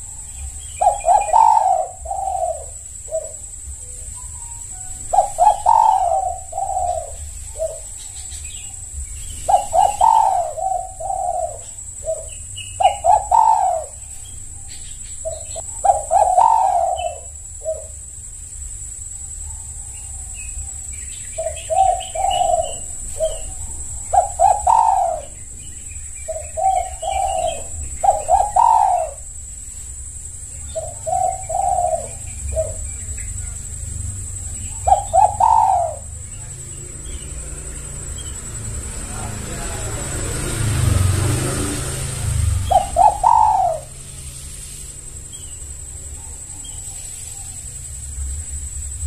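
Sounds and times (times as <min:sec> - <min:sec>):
dove cooing: 0:00.0 - 0:18.3, 0:19.0 - 0:44.4.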